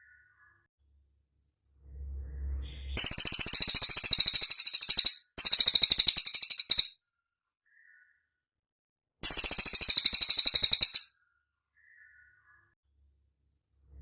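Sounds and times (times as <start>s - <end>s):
faint low rumble: 0.9s - 3.0s, 13.0s - 14.0s.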